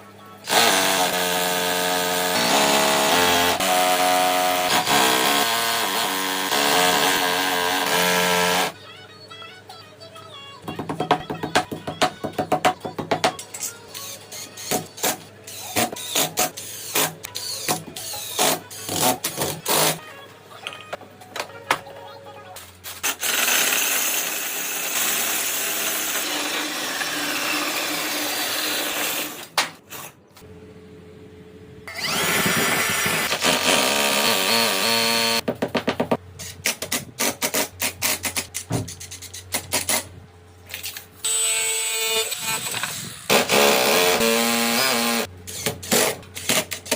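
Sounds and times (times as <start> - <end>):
power drill running: 0.5 - 8.8, 23.0 - 29.5, 31.9 - 35.4, 41.2 - 45.7
knocks and taps: 10.6 - 13.4.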